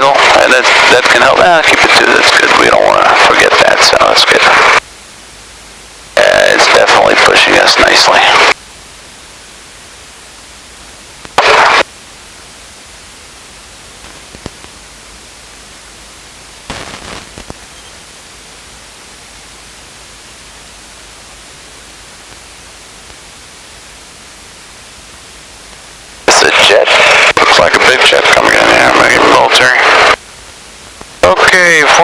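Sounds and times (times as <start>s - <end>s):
intercom static hiss: 0.0s - 32.0s
loud burst of noise: 6.2s - 8.6s, 11.3s - 11.9s, 16.6s - 18.1s, 26.2s - 30.2s
faint crackle with clicks: 14.0s - 14.8s, 16.7s - 17.6s.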